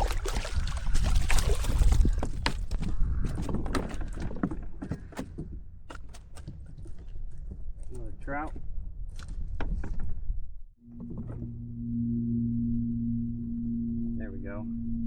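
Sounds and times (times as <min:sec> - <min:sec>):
water movement: 0:00.0 - 0:05.2
knocks and clatter on a kayak: 0:00.0 - 0:10.4
low rumble over microphone: 0:10.2 - 0:15.0.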